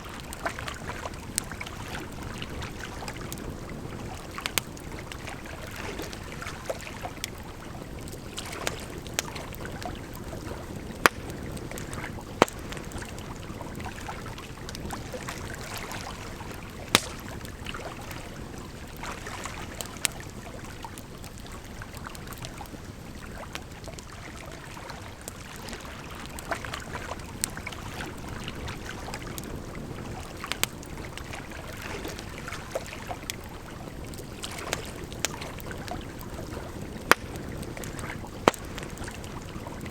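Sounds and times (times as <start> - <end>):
campfire crackling: 0.0 - 39.9
sharp fire pops: 10.8 - 13.2, 16.8 - 17.6, 30.5 - 30.8, 36.8 - 39.2.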